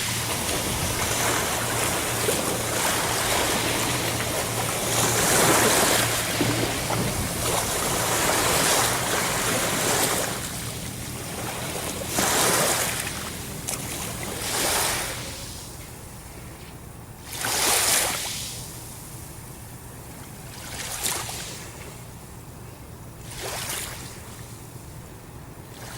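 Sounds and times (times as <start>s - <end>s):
ocean waves breaking: 0.0s - 15.6s.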